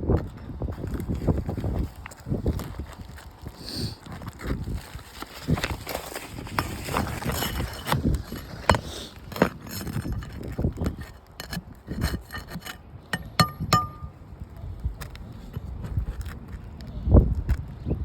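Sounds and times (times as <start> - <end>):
scraping and rubbing strokes: 5.0 - 14.1
short metallic clinks: 12.4 - 14.1.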